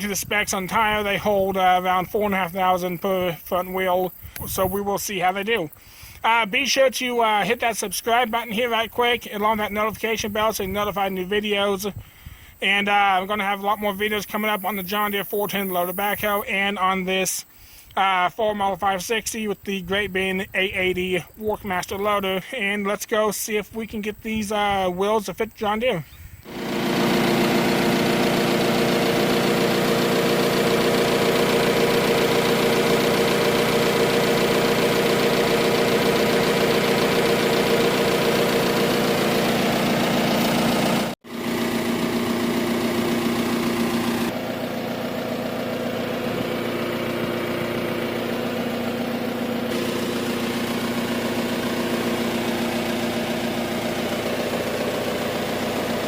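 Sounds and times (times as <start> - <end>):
diesel engine idling: 26.4 - 56.0.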